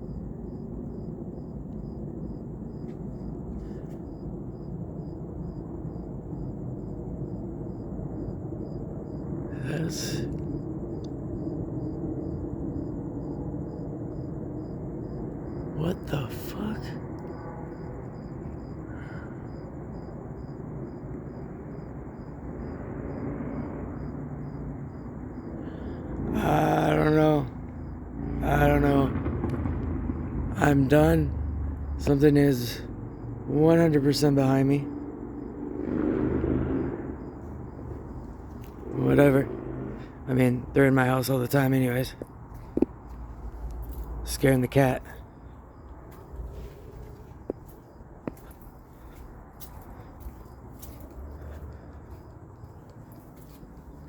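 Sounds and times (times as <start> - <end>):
insect chirping: 0.0 - 54.0
low rumble: 27.4 - 32.2, 34.8 - 54.0.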